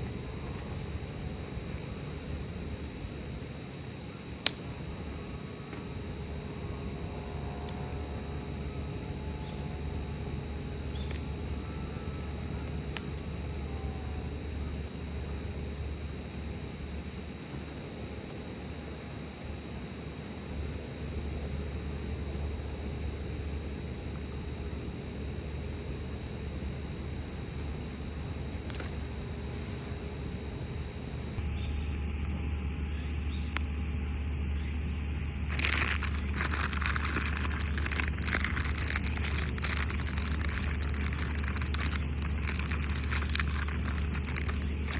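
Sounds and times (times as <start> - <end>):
crickets and insects trilling: 0.0 - 44.9
low hum: 29.0 - 44.9.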